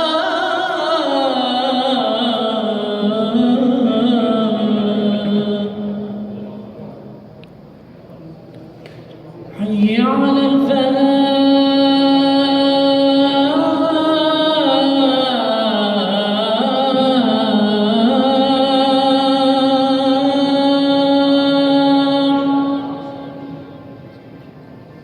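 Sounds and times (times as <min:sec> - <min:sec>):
man chanting call to prayer: 0:09.5 - 0:23.7.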